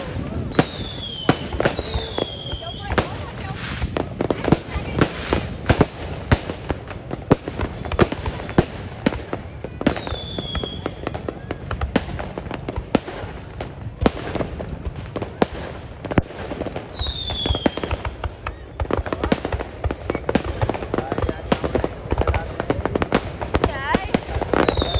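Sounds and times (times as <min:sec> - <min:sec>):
fireworks bangs and crackles: 0:00.0 - 0:24.9
firework whistles falling in pitch: 0:00.5 - 0:03.0, 0:09.8 - 0:11.6, 0:16.9 - 0:18.9.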